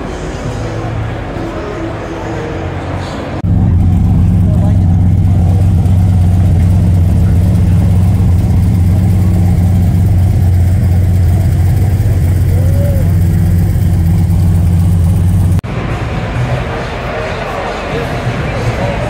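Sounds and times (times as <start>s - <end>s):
car engine idling: 3.2s - 19.0s.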